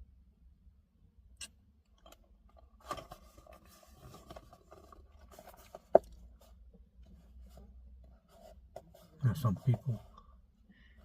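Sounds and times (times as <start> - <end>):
scraping and rustling: 2.8 - 10.1.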